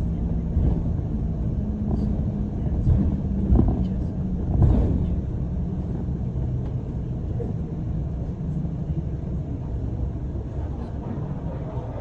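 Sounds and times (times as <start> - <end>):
bus engine rumble: 0.0 - 12.0
road noise: 0.0 - 12.0.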